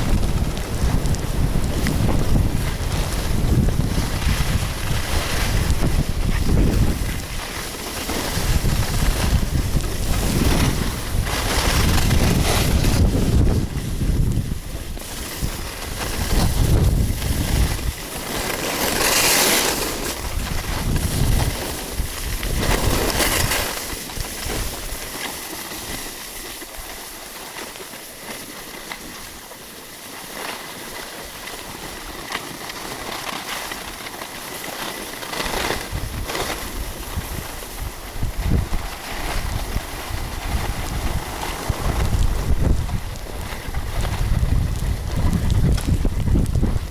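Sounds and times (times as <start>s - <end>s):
wind buffeting microphone: 0.0s - 18.3s, 20.0s - 25.0s, 35.5s - 46.9s.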